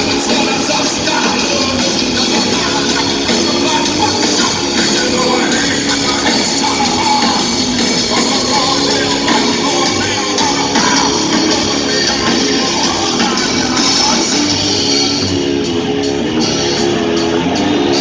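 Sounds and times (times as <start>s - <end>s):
hard rock band playing: 0.0s - 18.0s.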